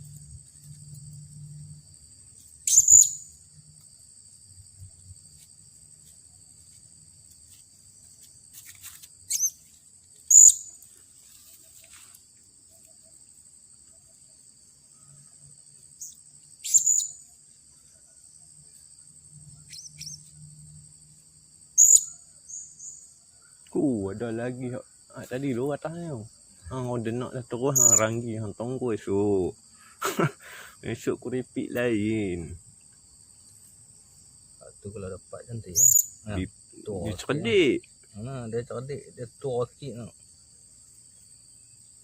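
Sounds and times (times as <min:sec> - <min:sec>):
insects droning: 0:00.0 - 0:42.0
parrot high-pitched calls: 0:02.7 - 0:03.2, 0:10.3 - 0:10.7, 0:27.8 - 0:28.0, 0:35.8 - 0:36.1.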